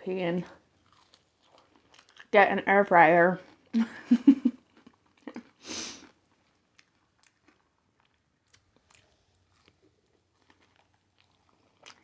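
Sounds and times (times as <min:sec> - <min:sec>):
person chewing crunchy food: 0:00.6 - 0:02.4, 0:03.4 - 0:03.7, 0:04.6 - 0:12.0
wet chewing clicks: 0:00.8 - 0:02.5, 0:04.6 - 0:12.0.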